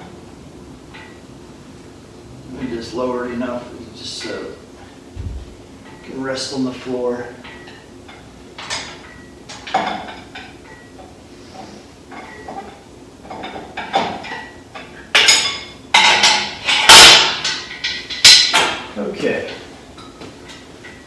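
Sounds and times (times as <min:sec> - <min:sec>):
metal clinking and clanking: 0:07.4 - 0:11.1, 0:12.1 - 0:21.0.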